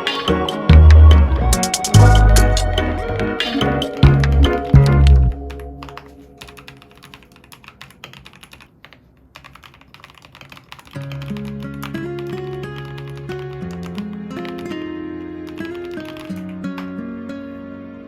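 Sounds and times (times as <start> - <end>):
background music: 0.0 - 7.3, 11.5 - 18.0
mechanical keyboard typing: 3.9 - 14.7, 15.4 - 17.0.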